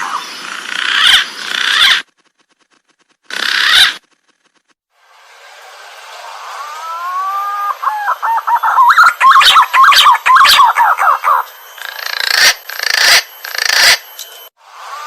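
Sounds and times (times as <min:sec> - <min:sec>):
harsh hissy bird notes: 0:05.9 - 0:14.0
pigeon whistling song: 0:06.8 - 0:11.5.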